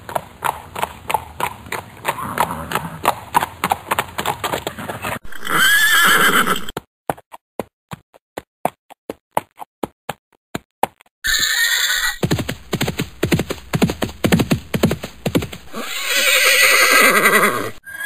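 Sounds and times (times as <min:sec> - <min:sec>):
horse hooves clip-clopping: 0:00.0 - 0:05.2, 0:06.2 - 0:16.4
horse whinny: 0:04.7 - 0:06.7, 0:11.3 - 0:12.2, 0:15.7 - 0:18.0.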